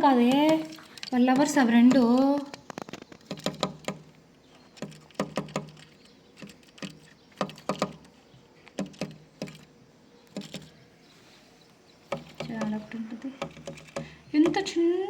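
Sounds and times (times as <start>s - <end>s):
bird beak pecking hard surface: 0.2s - 10.8s, 12.0s - 14.8s.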